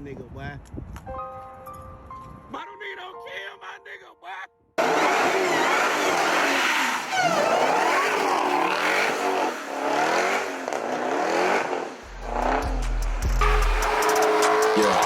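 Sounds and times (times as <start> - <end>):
car engine revving hard: 4.8 - 15.0
deep bass beat: 12.0 - 15.0.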